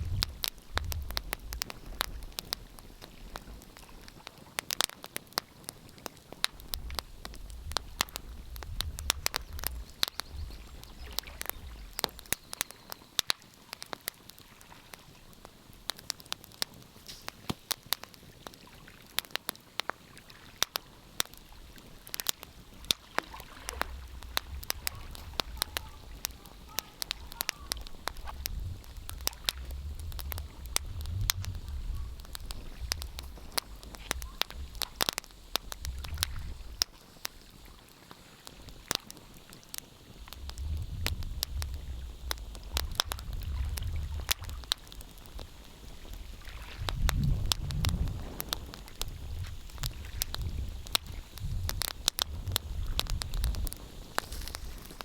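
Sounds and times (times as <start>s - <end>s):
low rumble: 0.0s - 1.4s, 27.7s - 35.0s
wood fire crackling and popping: 0.0s - 55.0s.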